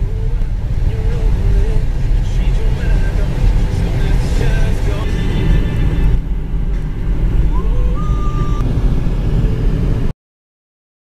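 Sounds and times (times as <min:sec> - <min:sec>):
car rumbling: 0:00.0 - 0:10.1
faint short rising tone: 0:05.1 - 0:09.8.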